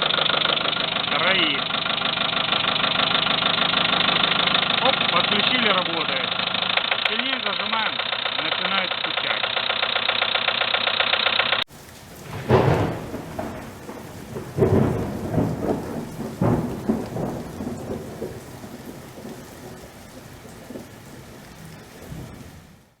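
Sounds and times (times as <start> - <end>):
deep rolling rumble: 11.8 - 22.6.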